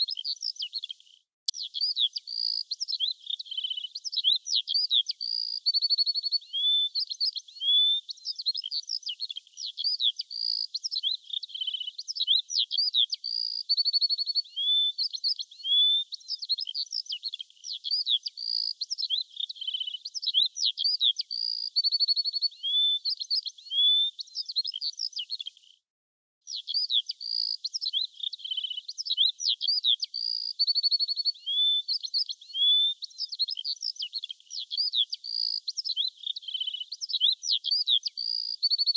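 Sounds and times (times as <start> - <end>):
birds chirping and trilling: 26.5 - 38.9.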